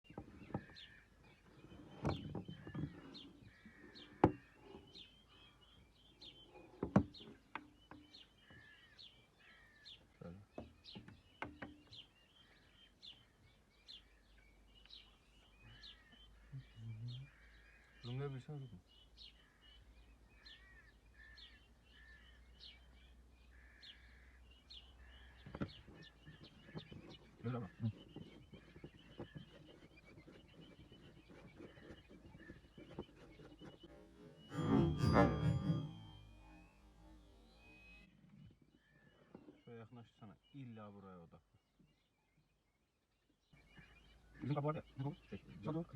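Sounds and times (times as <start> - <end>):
small birds chirping: 0.0 - 45.9
sharp knocks: 34.5 - 36.4.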